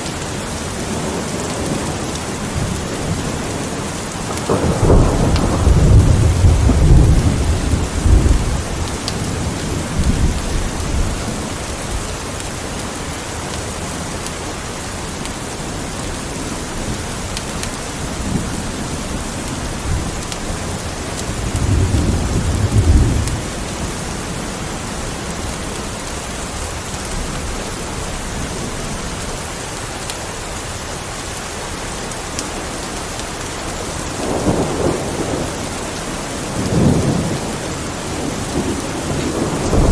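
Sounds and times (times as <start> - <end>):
steady rain: 0.0 - 39.9
low thunder rumbling: 0.8 - 12.0, 17.9 - 25.5, 34.1 - 39.9.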